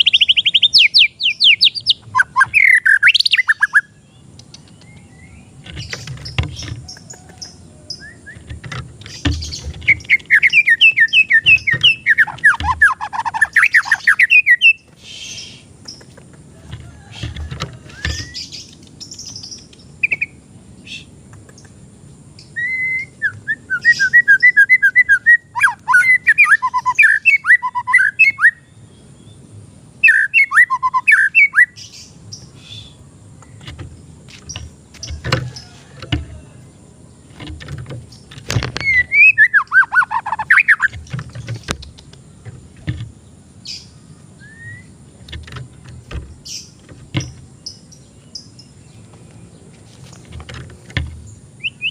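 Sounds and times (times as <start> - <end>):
bird singing chirps and whistles: 0.0 - 8.5, 9.1 - 15.6, 22.4 - 29.4, 30.0 - 33.0, 38.8 - 41.7, 43.6 - 45.0, 51.6 - 51.9
sharp knocks: 45.3 - 47.5.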